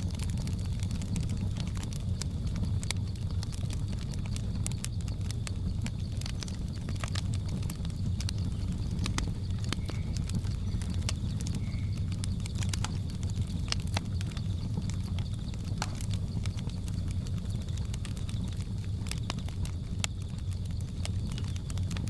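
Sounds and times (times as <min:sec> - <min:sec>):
insects droning: 0:00.0 - 0:22.0
low rumble: 0:00.0 - 0:22.0
wood fire crackling and popping: 0:00.0 - 0:22.0.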